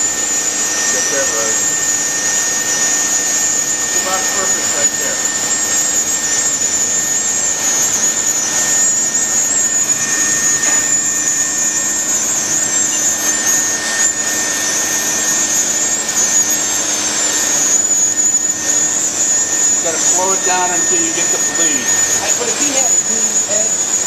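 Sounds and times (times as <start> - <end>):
hot-air welder blower hiss and whine: 0.0 - 24.0.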